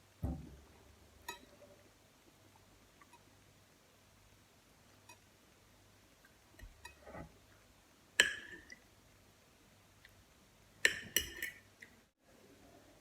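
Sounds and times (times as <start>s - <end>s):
cutlery clinking on a plate: 10.9s - 11.6s.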